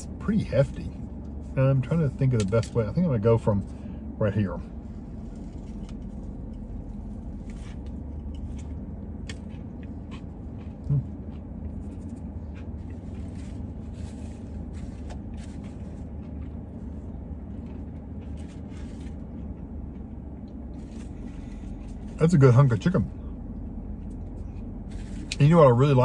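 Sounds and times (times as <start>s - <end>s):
steady low hum: 0.0s - 26.0s
crunchy chewing: 4.9s - 22.2s.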